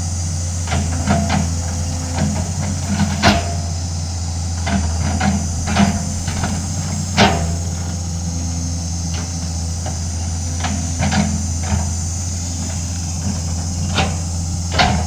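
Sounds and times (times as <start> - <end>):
excavator diesel engine running: 0.0 - 15.0
metal knocks and clanks: 13.6 - 15.0.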